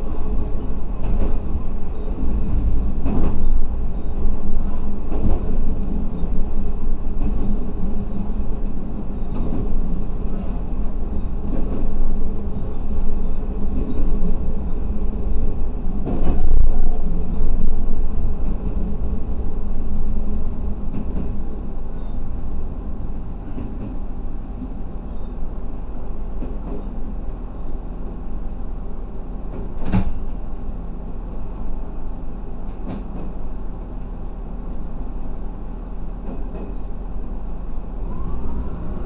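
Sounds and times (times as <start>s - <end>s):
railcar engine and wheel rumble: 0.0s - 39.0s.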